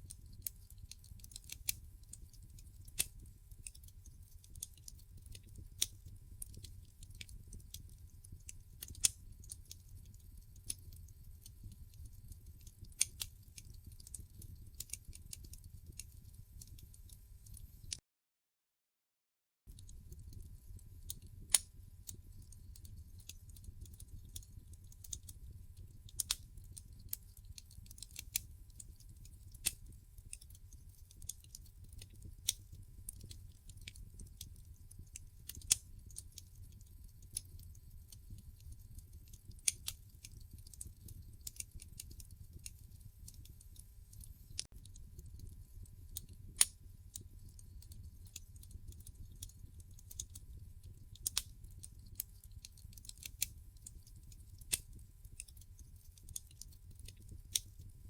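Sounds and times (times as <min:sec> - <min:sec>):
wood fire crackling: 0:00.0 - 0:18.0, 0:19.7 - 0:58.0.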